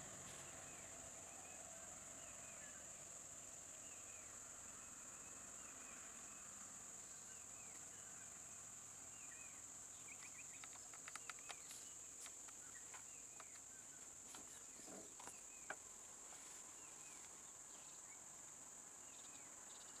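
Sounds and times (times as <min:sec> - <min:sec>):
insects droning: 0:00.0 - 0:20.0
bird chirps: 0:09.2 - 0:15.8
faint clicks: 0:10.1 - 0:15.8.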